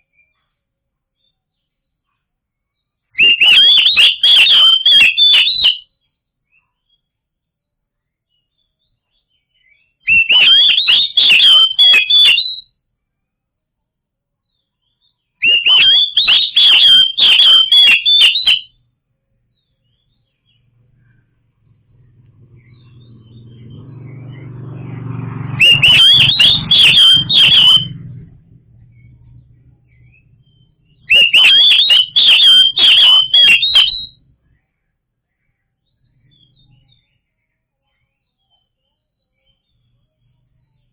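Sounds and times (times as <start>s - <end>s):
bird singing whistled phrases: 3.2s - 5.9s, 9.6s - 12.6s, 15.0s - 18.8s, 22.5s - 34.2s
low hum: 20.7s - 33.4s.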